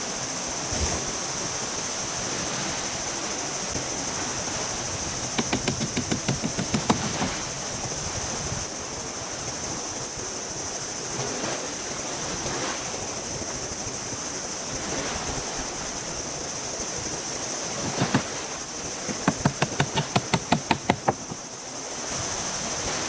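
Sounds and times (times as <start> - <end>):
sharp knocks: 5.3 - 7.5, 19.1 - 21.4.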